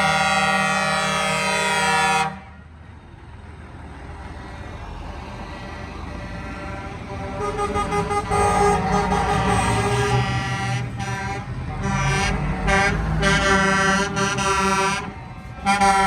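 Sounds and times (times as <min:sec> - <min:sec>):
truck air horn: 0:00.0 - 0:02.7, 0:06.2 - 0:16.0
vehicle engine and road noise: 0:00.0 - 0:16.0.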